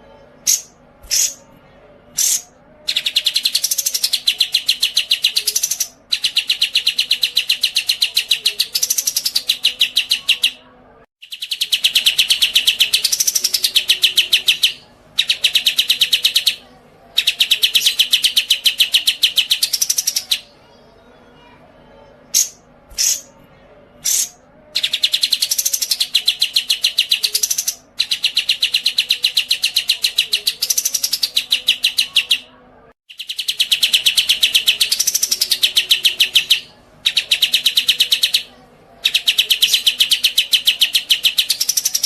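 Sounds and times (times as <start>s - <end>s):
short bird chirps: 2.2s - 3.1s.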